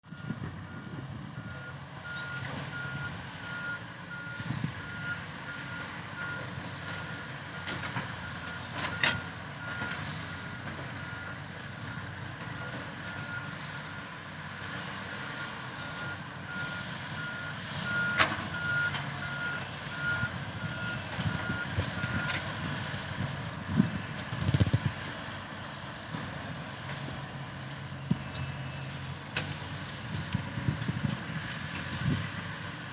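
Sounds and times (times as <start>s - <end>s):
excavator travel alarm beeping: 0.1s - 14.1s, 15.4s - 22.7s
excavator engine running: 0.1s - 32.9s.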